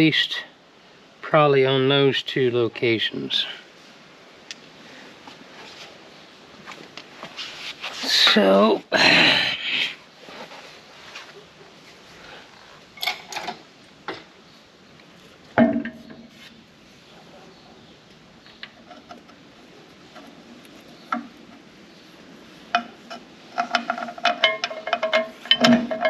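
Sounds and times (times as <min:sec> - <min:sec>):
bolts and nuts clinking on steel: 0:12.9 - 0:14.3, 0:22.7 - 0:26.0.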